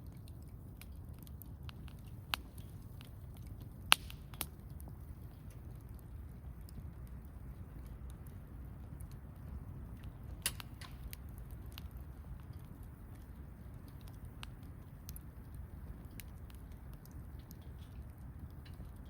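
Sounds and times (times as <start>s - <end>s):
campfire pops and snaps: 0.0s - 19.0s
low rumble of burning fire: 0.0s - 19.0s.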